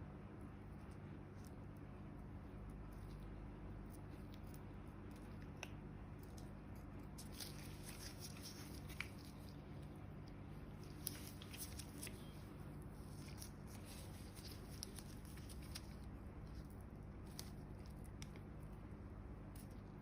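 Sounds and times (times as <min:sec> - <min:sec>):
steady low hum: 0:00.0 - 0:20.0
hands rustling on skin: 0:06.3 - 0:18.3.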